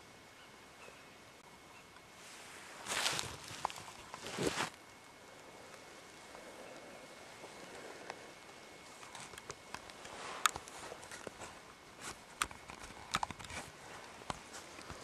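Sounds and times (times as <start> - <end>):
faint hiss: 0.0 - 12.4
footsteps snapping twigs: 2.8 - 4.8, 9.0 - 15.0.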